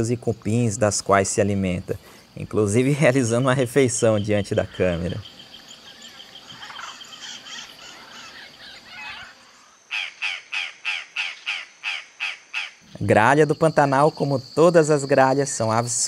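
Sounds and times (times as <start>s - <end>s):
faint outdoor background: 0.0s - 16.0s
bird giving harsh caws: 5.9s - 12.8s.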